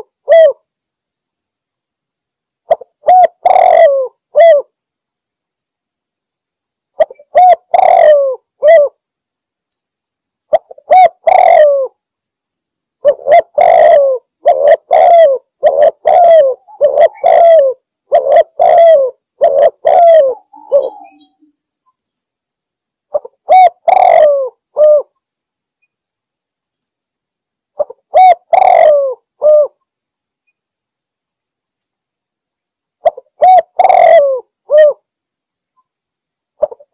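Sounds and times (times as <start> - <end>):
dove cooing: 0.0 - 0.6, 2.7 - 4.7, 7.0 - 9.0, 10.5 - 12.0, 13.0 - 21.4, 23.1 - 25.1, 27.8 - 29.8, 33.0 - 35.0, 36.6 - 36.9.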